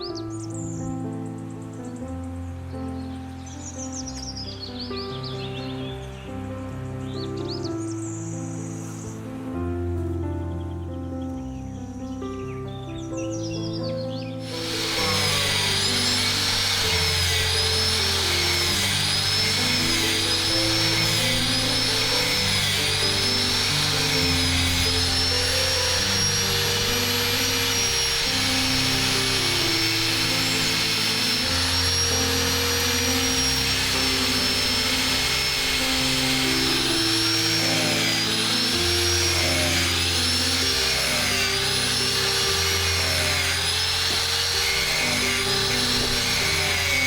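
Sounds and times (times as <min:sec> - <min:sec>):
power tool motor whine: 0:14.4 - 0:47.0.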